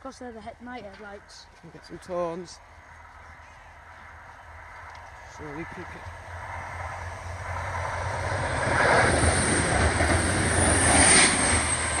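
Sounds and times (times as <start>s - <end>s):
train passing at speed: 3.7s - 12.0s.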